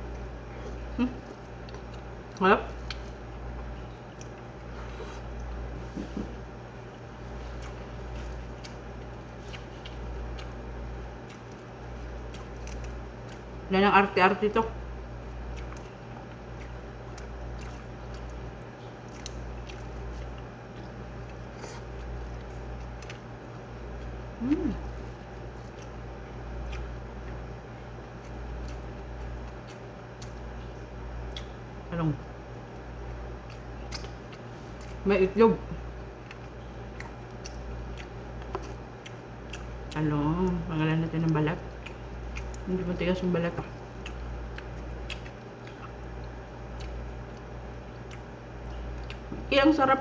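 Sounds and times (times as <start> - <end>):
person chewing food: 0.0 - 13.7, 15.2 - 31.8, 32.4 - 35.0, 35.8 - 40.6, 41.2 - 42.9, 43.6 - 49.5
steady low hum: 0.0 - 50.0
person humming: 24.4 - 24.9.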